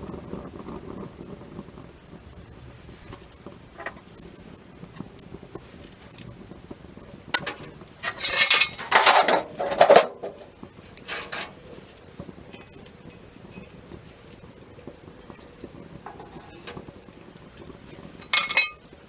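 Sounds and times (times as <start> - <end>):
campfire crackling: 0.0 - 19.0
loud clattering and scraping: 7.4 - 11.7, 15.3 - 16.9, 18.2 - 18.8.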